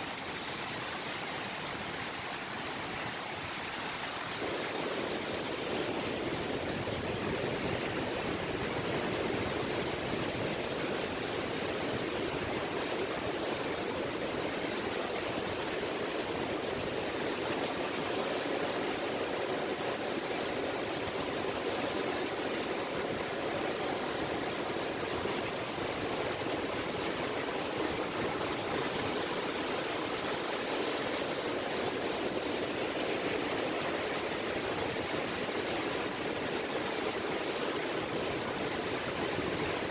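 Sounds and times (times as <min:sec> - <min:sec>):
small waves lapping on beach: 0:00.0 - 0:39.9.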